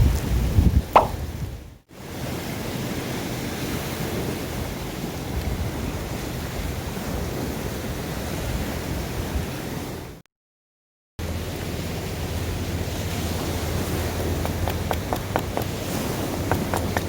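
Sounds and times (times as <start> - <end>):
wind rumbling on microphone: 0.0 - 10.2, 11.2 - 17.0
sea surf washing: 11.2 - 17.0.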